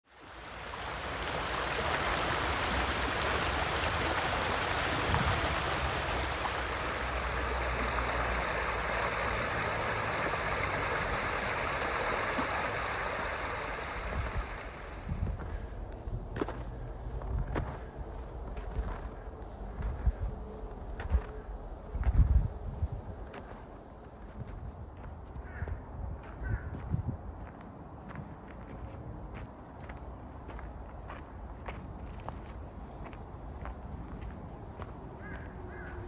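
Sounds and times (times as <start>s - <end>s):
stream water running: 0.0s - 19.2s.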